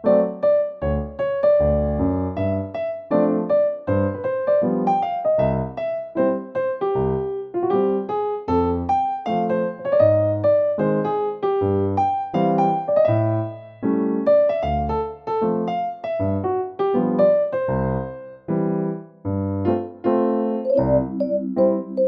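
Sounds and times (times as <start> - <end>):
keyboard playing light melody: 0.0 - 22.0.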